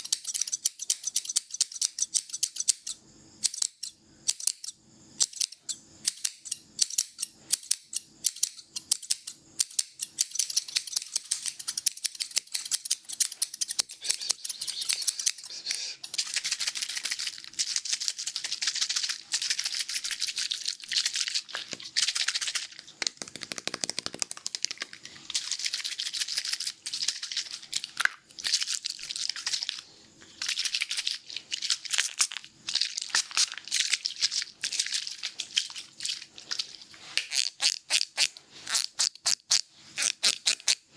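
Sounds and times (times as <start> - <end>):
scissors snipping hair: 0.0 - 20.3, 21.0 - 27.6, 37.2 - 40.8.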